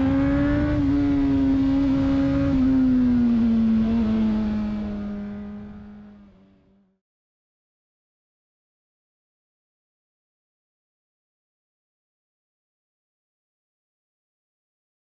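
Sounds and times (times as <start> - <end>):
low wind rumble: 0.0 - 6.4
motorcycle engine running: 0.0 - 6.9.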